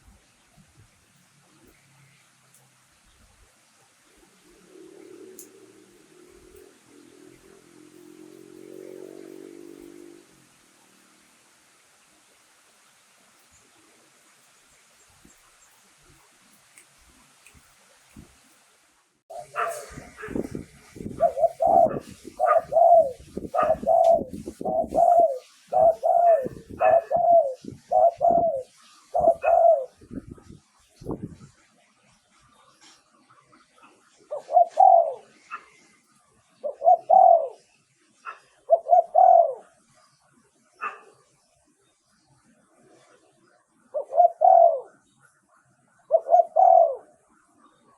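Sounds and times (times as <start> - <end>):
dove cooing: 4.0 - 11.0, 19.3 - 30.1, 34.3 - 35.9, 36.6 - 37.7, 38.3 - 39.9, 43.9 - 45.0, 46.0 - 47.2.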